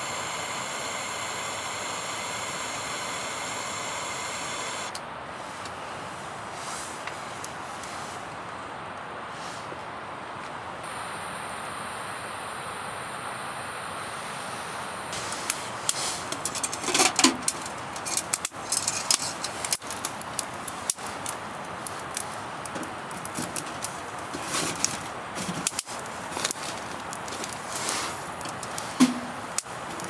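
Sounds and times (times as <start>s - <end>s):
steady hiss: 0.0s - 30.0s
sharp crackles and snaps: 15.1s - 30.0s.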